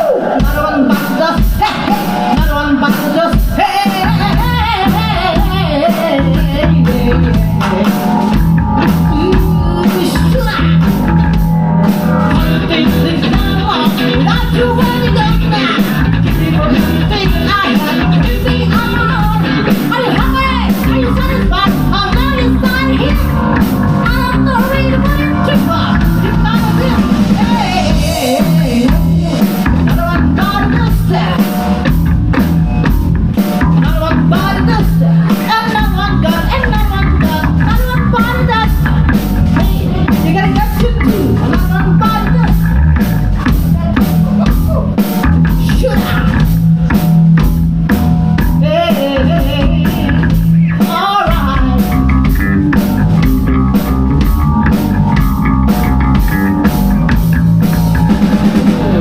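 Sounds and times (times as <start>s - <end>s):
bass guitar: 0.0s - 59.0s
drum kit: 0.0s - 59.0s
electric guitar: 0.0s - 59.0s
wavering melody line: 5.3s - 30.8s.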